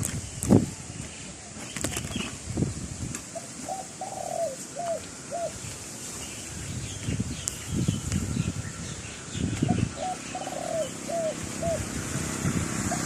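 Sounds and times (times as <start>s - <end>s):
wind rumble on microphone: 0.0s - 3.4s, 5.6s - 13.0s
dove cooing: 3.3s - 5.7s, 9.6s - 12.1s.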